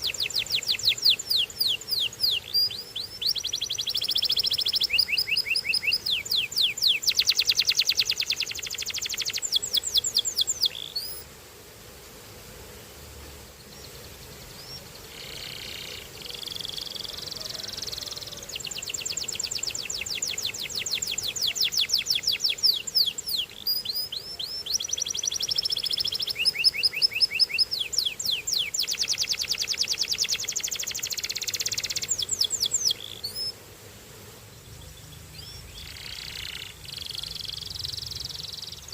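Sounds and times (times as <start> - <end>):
canary singing trills: 0.0 - 11.2, 13.7 - 33.5, 34.6 - 38.9.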